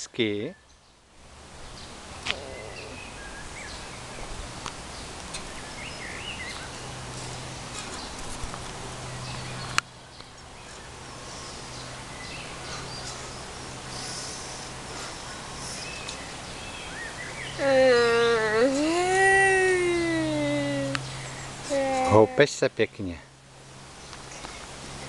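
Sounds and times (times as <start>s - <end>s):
birds chirping: 0.0s - 25.0s
steady background hiss: 0.0s - 25.0s.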